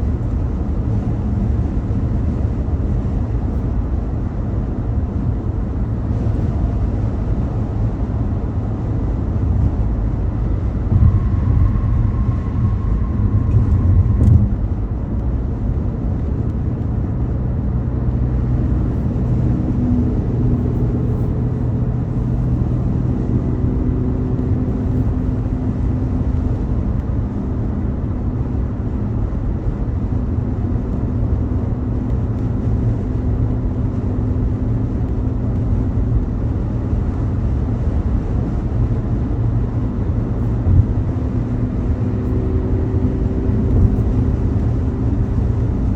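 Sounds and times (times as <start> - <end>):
car road and engine rumble: 0.0 - 45.9
faint engine hum: 0.0 - 45.9.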